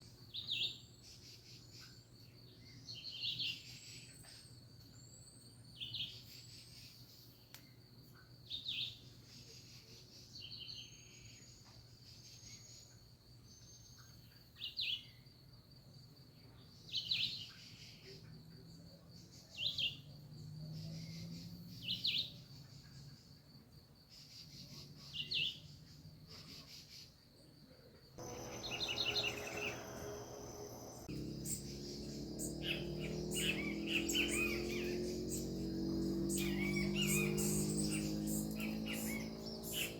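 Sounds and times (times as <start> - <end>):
high insect trill: 28.2 - 39.9
bird thin rising whistles: 36.3 - 39.9.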